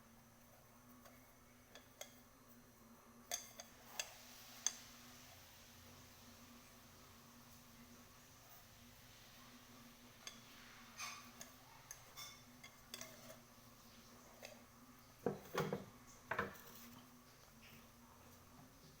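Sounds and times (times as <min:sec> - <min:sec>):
clinks and taps on metal pot: 0:11.0 - 0:13.4.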